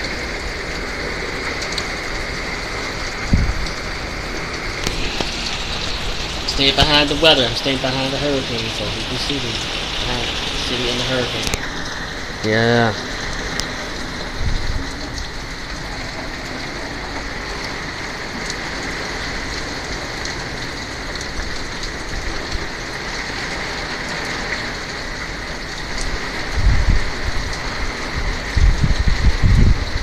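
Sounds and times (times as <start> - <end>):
heavy rain: 0.0 - 30.0
wind buffeting microphone: 1.9 - 12.4, 13.0 - 19.2, 25.8 - 30.0.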